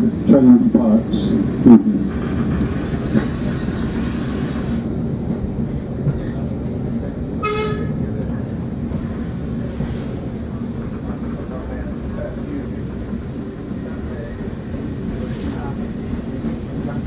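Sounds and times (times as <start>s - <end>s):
railway carriage rumbling on track: 0.0s - 17.0s
locomotive horn toot: 7.4s - 8.0s.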